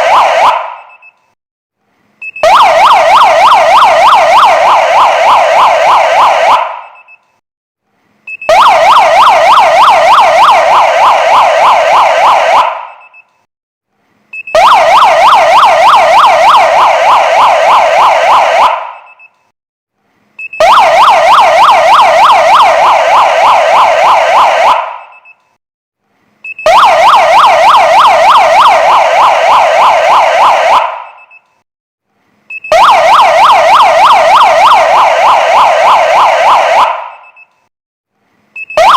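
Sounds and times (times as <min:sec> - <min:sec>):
electronic siren warbling yelp: 0:00.0 - 0:01.0, 0:02.4 - 0:07.0, 0:08.5 - 0:12.8, 0:14.5 - 0:19.2, 0:20.6 - 0:25.1, 0:26.6 - 0:31.3, 0:32.6 - 0:37.4, 0:38.7 - 0:38.9.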